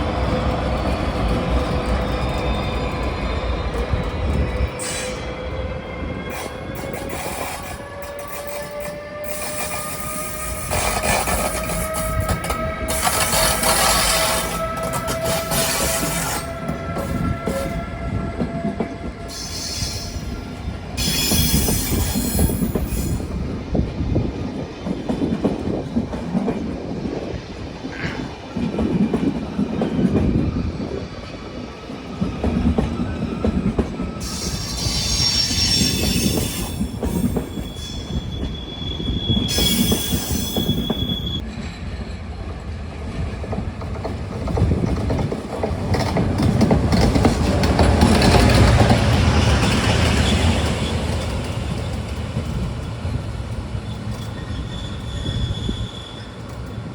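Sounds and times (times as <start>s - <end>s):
train wheels rumbling and clacking: 0.0s - 56.9s
high wheel squeal: 6.3s - 23.3s, 33.0s - 41.5s, 53.8s - 56.8s.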